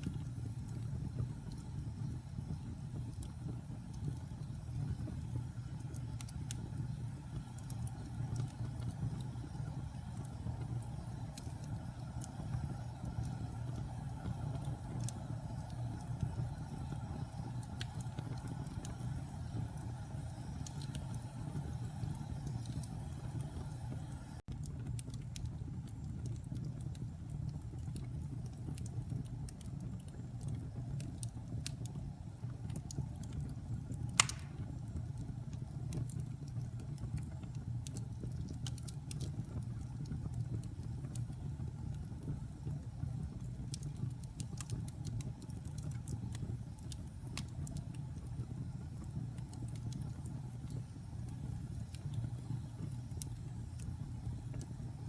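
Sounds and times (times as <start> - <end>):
fire crackling: 0.0 - 55.0
fire rumbling: 0.0 - 55.0
loud fire pop: 34.2 - 34.8.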